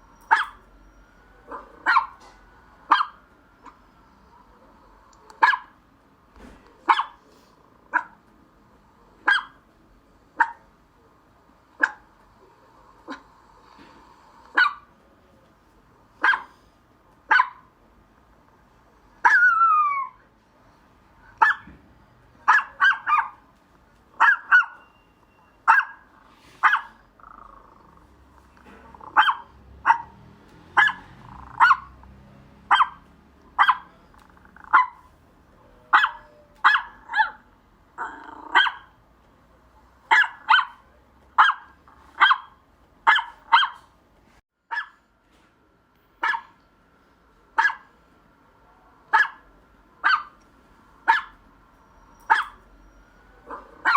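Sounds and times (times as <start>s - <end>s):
dog barking: 0.2s - 0.7s, 1.4s - 2.3s, 2.9s - 3.8s, 5.4s - 5.8s, 6.8s - 7.2s, 7.9s - 8.2s, 9.2s - 9.6s, 10.4s - 10.6s, 11.8s - 12.1s, 14.5s - 14.9s, 16.2s - 16.6s, 17.3s - 17.7s, 19.2s - 20.2s, 21.4s - 21.7s, 22.4s - 23.4s, 24.2s - 24.9s, 25.5s - 27.0s, 29.0s - 32.0s, 32.6s - 35.1s, 35.9s - 37.5s, 38.3s - 39.0s, 40.1s - 43.9s, 44.7s - 45.0s, 46.2s - 46.6s, 47.6s - 47.9s, 49.1s - 50.4s, 51.0s - 51.4s, 52.2s - 52.7s, 53.4s - 53.9s
dog yelping: 0.2s - 2.2s, 2.9s - 3.8s, 5.4s - 5.7s, 6.9s - 7.2s, 7.9s - 8.2s, 9.2s - 9.6s, 14.6s - 14.9s, 16.2s - 16.6s, 17.3s - 17.7s, 19.2s - 20.2s, 21.4s - 21.7s, 22.5s - 23.4s, 24.2s - 28.0s, 28.9s - 32.0s, 32.7s - 33.0s, 33.6s - 35.1s, 35.9s - 39.0s, 40.1s - 43.9s, 44.7s - 45.0s, 46.2s - 46.6s, 47.6s - 47.9s, 49.1s - 49.4s, 50.0s - 50.4s, 51.1s - 51.4s, 52.0s - 53.9s.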